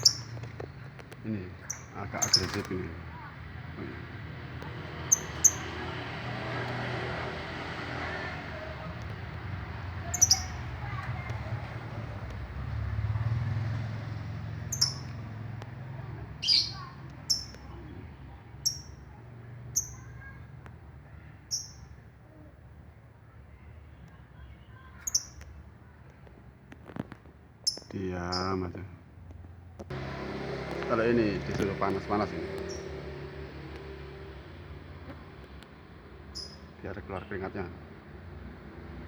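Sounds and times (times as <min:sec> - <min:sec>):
songbird sharp chirps: 0:00.0 - 0:01.0, 0:01.6 - 0:02.6, 0:05.0 - 0:05.8, 0:10.0 - 0:10.8, 0:14.6 - 0:15.3, 0:16.4 - 0:20.4, 0:21.1 - 0:22.0, 0:24.0 - 0:25.6, 0:36.3 - 0:36.7.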